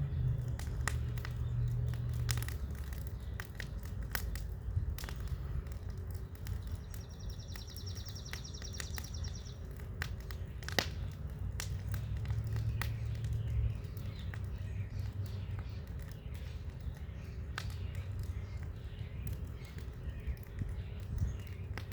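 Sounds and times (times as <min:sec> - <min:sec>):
bonfire crackling and popping: 0:00.0 - 0:21.9
low steady rumble: 0:00.0 - 0:21.9.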